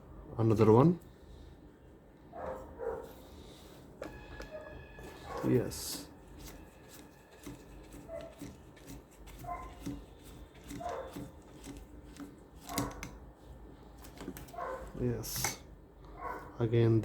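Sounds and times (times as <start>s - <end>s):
dog barking: 2.3s - 3.1s, 4.5s - 5.6s, 8.0s - 8.4s, 9.4s - 9.8s, 10.8s - 11.3s, 12.6s - 13.0s, 14.5s - 15.0s, 16.1s - 16.6s.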